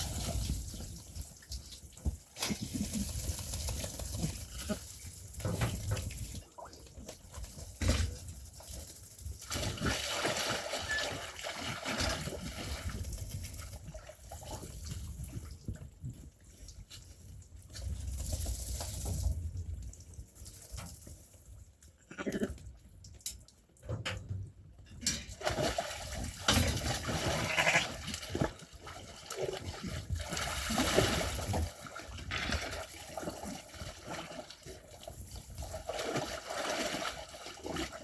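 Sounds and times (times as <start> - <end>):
sheep bleating: 27.4 - 27.9.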